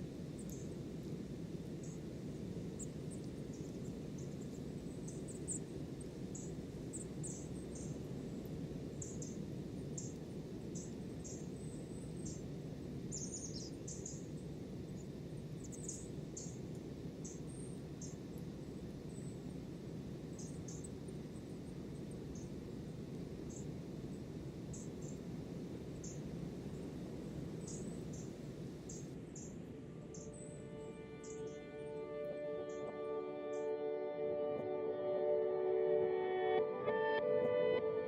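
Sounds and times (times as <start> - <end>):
small birds chirping: 0.4 - 0.8, 2.8 - 19.4, 20.3 - 22.6, 23.4 - 25.3, 25.9 - 31.7.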